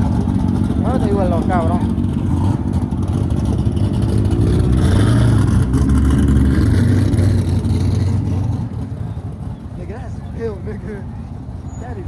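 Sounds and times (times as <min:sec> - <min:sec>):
car engine and exhaust running: 0:00.0 - 0:12.0.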